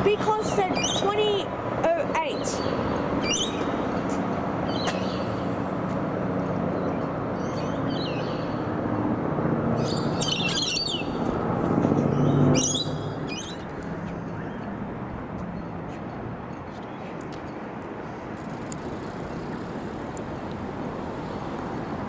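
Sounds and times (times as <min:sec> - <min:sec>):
traffic rumble: 0:00.0 - 0:22.0
birds chirping: 0:00.1 - 0:01.5, 0:02.2 - 0:09.1, 0:09.7 - 0:14.9.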